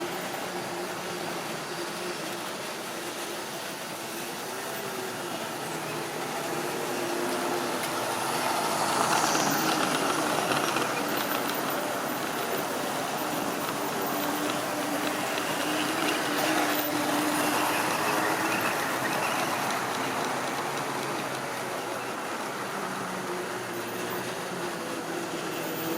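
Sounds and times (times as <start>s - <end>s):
wheels rumbling on rail: 0.0s - 25.9s
electric motor whine: 4.0s - 21.8s.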